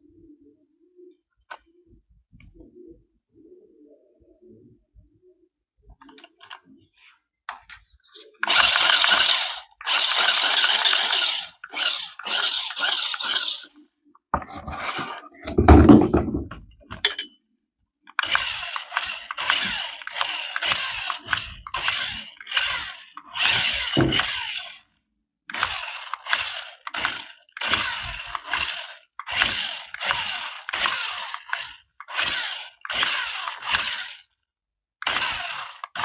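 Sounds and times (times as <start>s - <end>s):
hard plastic rattling and clinking: 14.4s - 17.3s, 24.0s - 24.3s.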